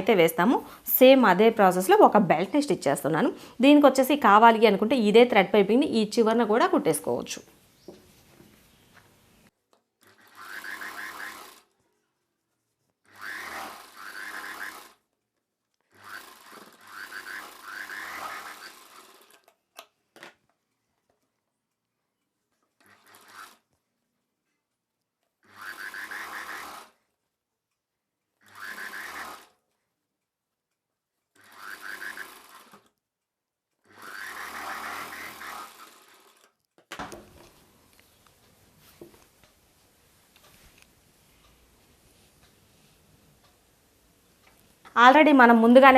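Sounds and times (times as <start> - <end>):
electric sewing machine stitching: 10.0 - 11.8, 13.1 - 15.1, 15.8 - 19.6, 22.8 - 23.7, 25.4 - 27.0, 28.4 - 29.6, 31.3 - 33.0, 33.8 - 36.6.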